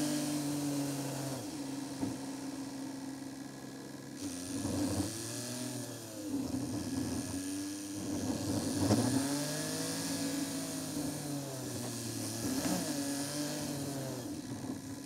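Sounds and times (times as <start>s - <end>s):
car engine revving: 8.0s - 14.4s.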